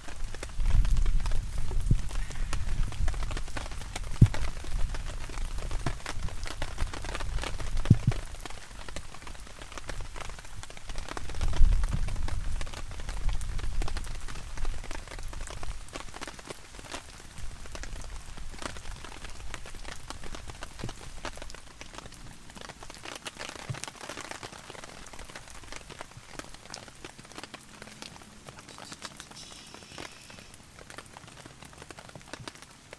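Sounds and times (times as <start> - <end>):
heavy rain on a tarp: 0.0 - 32.9.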